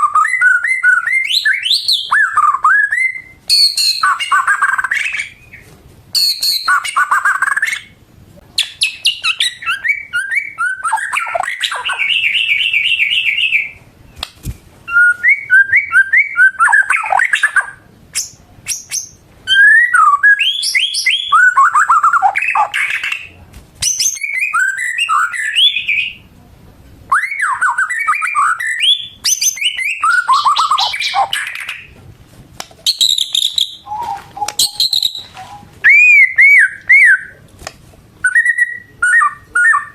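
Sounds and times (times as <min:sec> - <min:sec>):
songbird whistling and trilling: 0:00.0 - 0:08.0, 0:08.6 - 0:14.2, 0:14.9 - 0:26.2, 0:27.1 - 0:31.9, 0:32.8 - 0:37.4, 0:38.2 - 0:39.9.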